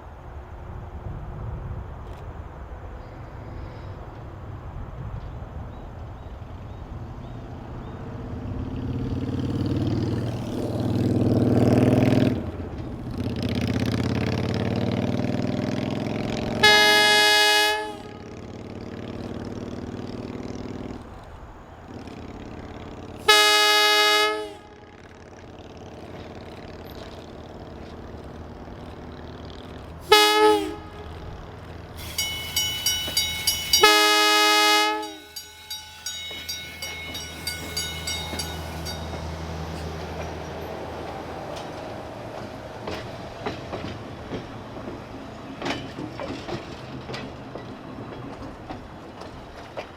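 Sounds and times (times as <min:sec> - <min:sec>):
low train rumble: 0:00.0 - 0:49.9
train horn blasts: 0:16.6 - 0:18.4, 0:23.3 - 0:25.0, 0:30.1 - 0:31.4, 0:32.0 - 0:39.5
bell ringing rapidly: 0:32.0 - 0:39.5.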